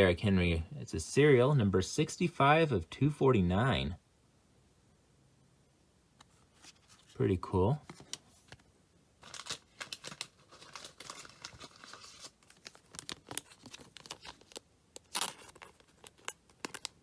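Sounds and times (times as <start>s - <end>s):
foil wrapper crinkling and tearing: 9.2s - 17.0s.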